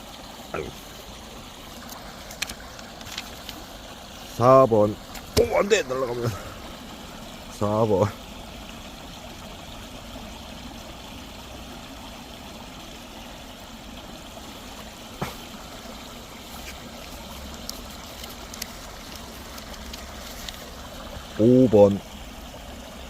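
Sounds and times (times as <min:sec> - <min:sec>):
stream water flowing: 0:00.0 - 0:23.0.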